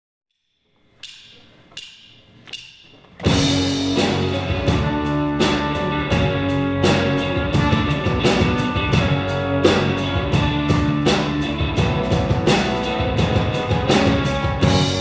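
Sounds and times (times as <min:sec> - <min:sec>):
rock band playing: 0:03.2 - 0:15.0.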